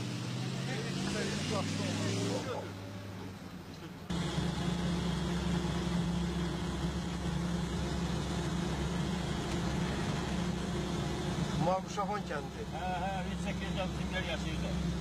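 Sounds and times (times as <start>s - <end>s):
car engine running: 4.1s - 15.0s.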